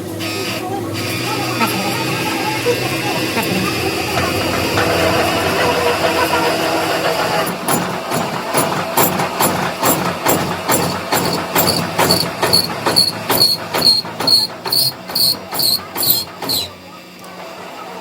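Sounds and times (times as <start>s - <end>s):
hammer blows on steel: 7.5s - 16.8s.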